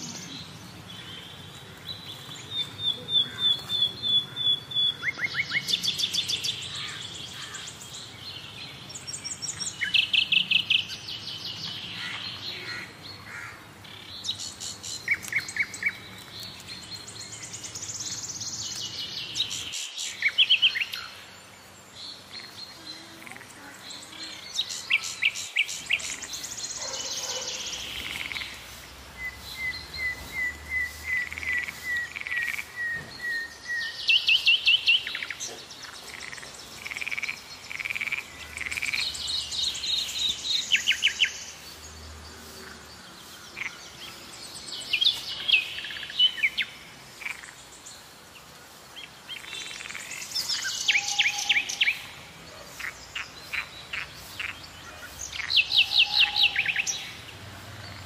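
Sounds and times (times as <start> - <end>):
birds singing and calling: 0.0 - 58.0
bird trills and chirps: 48.4 - 58.0.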